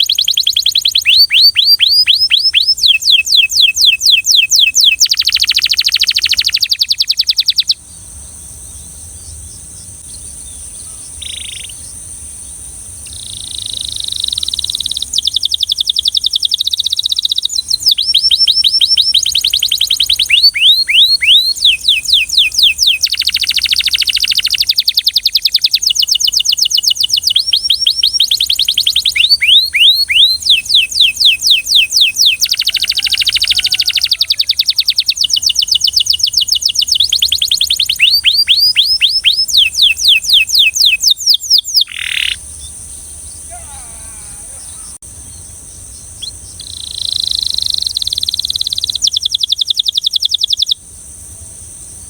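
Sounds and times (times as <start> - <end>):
canary singing trills: 0.0 - 50.8.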